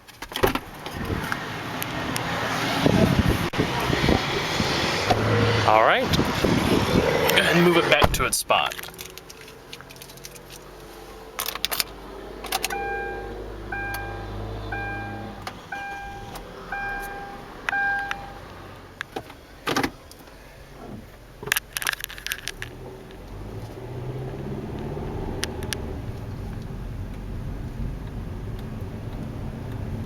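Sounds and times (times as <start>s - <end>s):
car warning chime beeping: 12.6s - 18.5s.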